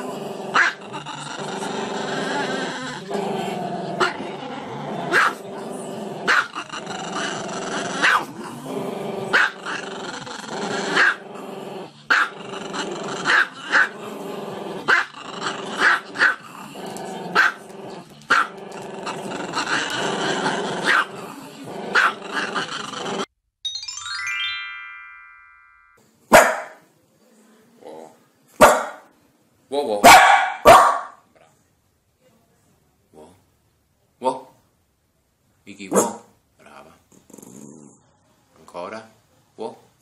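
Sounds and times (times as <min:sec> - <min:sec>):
dog barking: 0:05.1 - 0:05.4, 0:06.3 - 0:06.5, 0:08.0 - 0:08.3, 0:12.1 - 0:12.3, 0:17.4 - 0:17.6, 0:20.9 - 0:21.1, 0:21.9 - 0:22.2, 0:26.3 - 0:26.8, 0:28.6 - 0:29.1, 0:30.0 - 0:31.2, 0:35.9 - 0:36.3.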